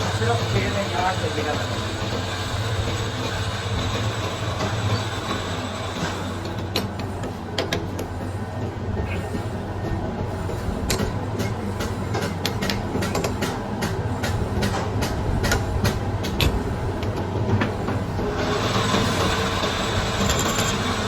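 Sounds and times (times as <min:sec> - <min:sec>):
workshop machinery humming: 0:00.0 - 0:21.0
sharp metallic clicks and knocks: 0:10.9 - 0:18.0.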